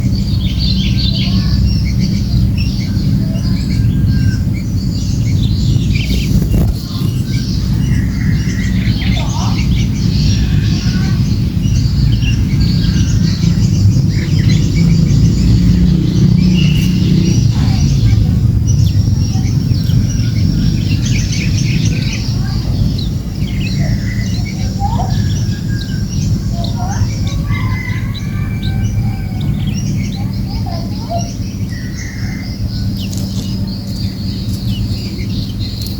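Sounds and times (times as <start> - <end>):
bird chicks chirping: 0.0 - 35.9
loud low rumble: 0.0 - 35.9.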